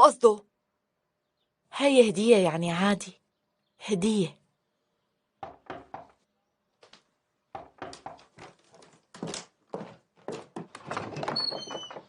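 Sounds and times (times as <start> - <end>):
irregular knocks and thuds: 5.4 - 6.2, 6.8 - 12.0.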